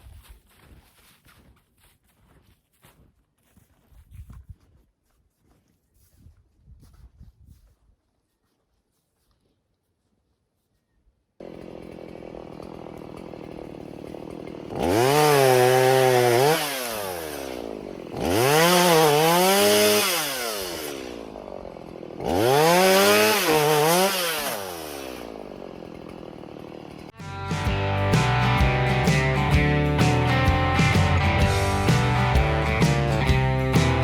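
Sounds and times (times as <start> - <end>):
chainsaw idling and revving: 11.4 - 34.0
guitar: 27.1 - 34.0.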